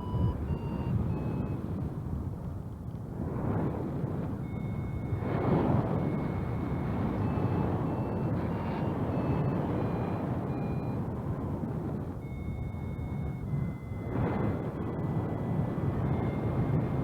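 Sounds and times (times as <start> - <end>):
faint high tones: 0.0 - 1.6
wind rushing over microphone: 0.0 - 17.0.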